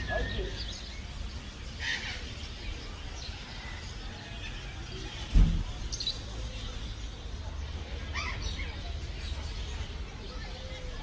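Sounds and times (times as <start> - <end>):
birds chirping: 0.0 - 11.0
loud dull thump: 5.3 - 5.8.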